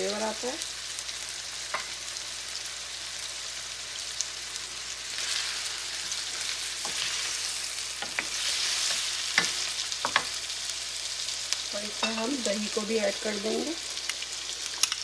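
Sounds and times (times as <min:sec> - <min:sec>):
food sizzling in hot oil: 0:00.0 - 0:15.0
spoon knocking against pan: 0:09.4 - 0:10.3.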